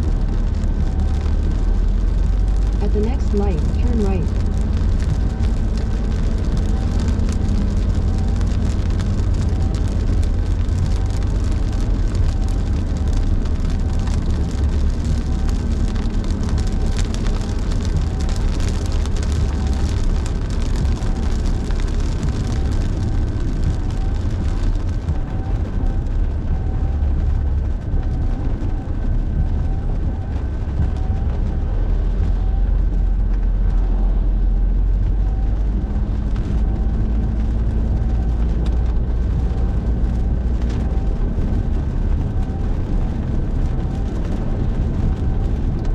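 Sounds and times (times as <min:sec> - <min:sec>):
rain and tyre spray hiss: 0:00.0 - 0:45.9
road and engine rumble: 0:00.0 - 0:45.9.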